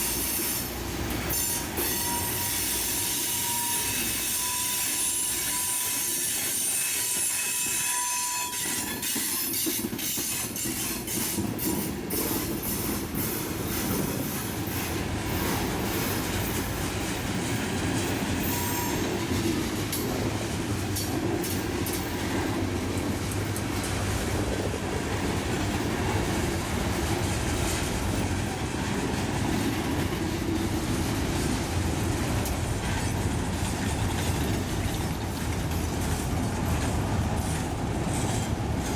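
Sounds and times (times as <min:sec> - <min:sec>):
train rumbling: 0:00.0 - 0:38.9
train wheels squealing on rails: 0:00.0 - 0:38.9
wheels clicking over rail joints: 0:08.5 - 0:38.9.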